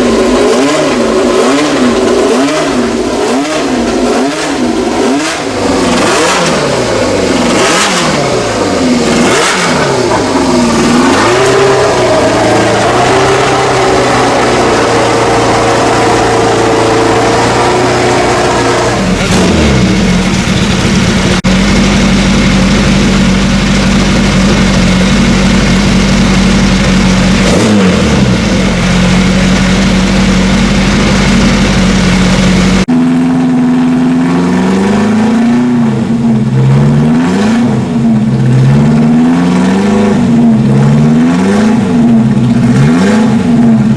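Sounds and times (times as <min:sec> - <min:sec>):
engines running at steady revs: 0:00.0 - 0:43.9
racing car engines passing: 0:00.2 - 0:20.1.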